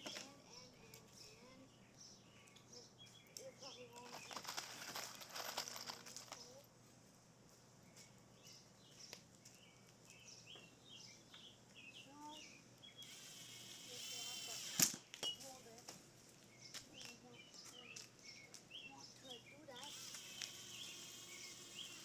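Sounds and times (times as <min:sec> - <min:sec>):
small birds chirping: 0:00.0 - 0:22.0
scraping rustling noise: 0:04.0 - 0:07.1.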